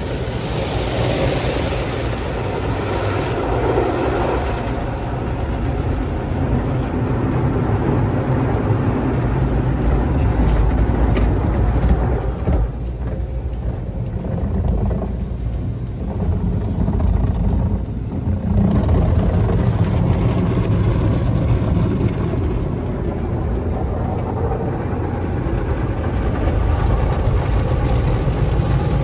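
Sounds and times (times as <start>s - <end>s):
water spraying: 0.0s - 6.5s
car wash machinery rumbling: 0.0s - 29.0s.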